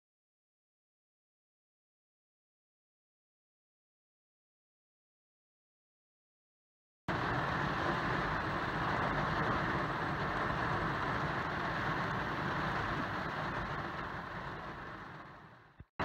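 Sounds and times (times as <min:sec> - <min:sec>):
rain on car roof: 0:07.1 - 0:15.9.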